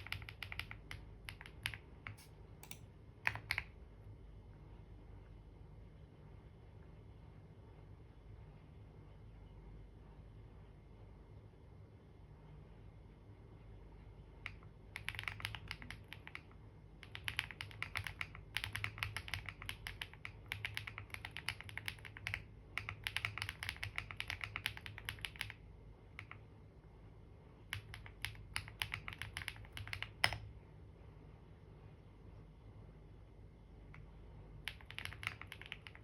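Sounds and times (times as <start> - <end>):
keyboard typing: 0.0 - 3.8, 14.4 - 25.6, 26.2 - 26.5, 27.7 - 30.5, 34.0 - 36.0
faint low hum: 0.0 - 36.0.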